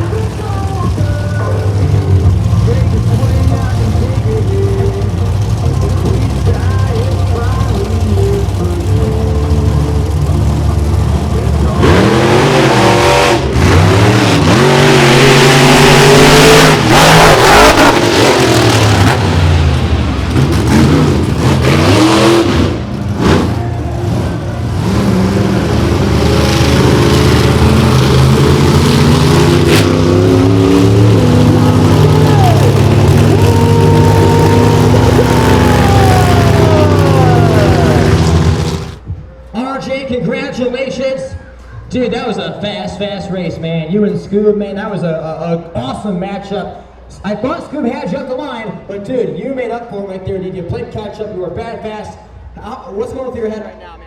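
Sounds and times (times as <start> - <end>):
monster truck engines revving: 0.0 - 39.1.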